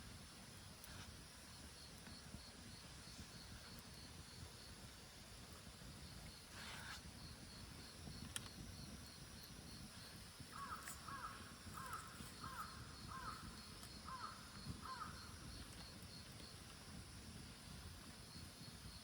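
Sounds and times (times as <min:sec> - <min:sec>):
crow cawing: 0:10.5 - 0:13.4, 0:14.1 - 0:15.2.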